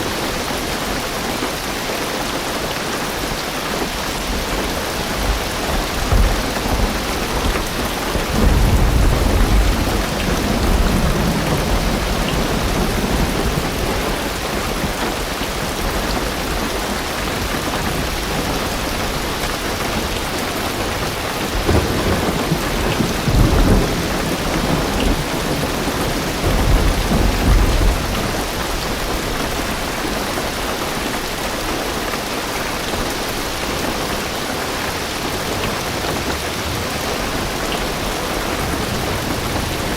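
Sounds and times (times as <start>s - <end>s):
heavy rain on car roof: 0.0s - 39.9s
thunder rumbling: 3.8s - 30.6s, 34.8s - 39.9s.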